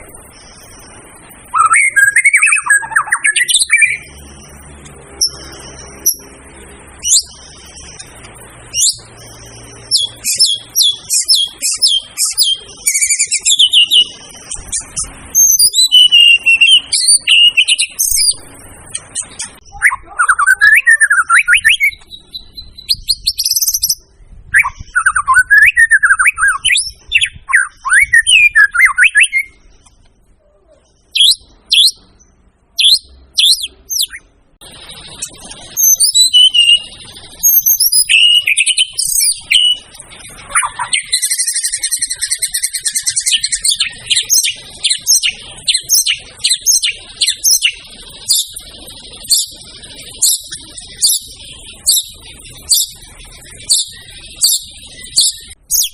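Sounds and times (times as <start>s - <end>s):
bird singing whistled notes: 0.0s - 29.9s, 31.0s - 55.9s.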